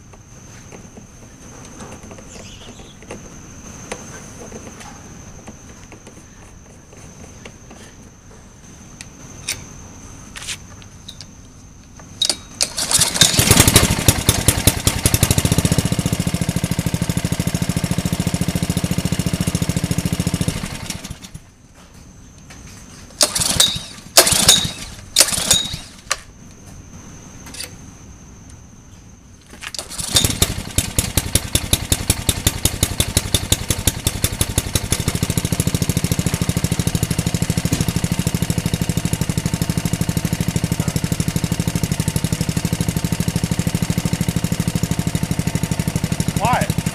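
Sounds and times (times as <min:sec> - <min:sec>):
small engine starting and running: 0:12.2 - 0:21.4, 0:23.2 - 0:26.2, 0:29.6 - 0:46.9.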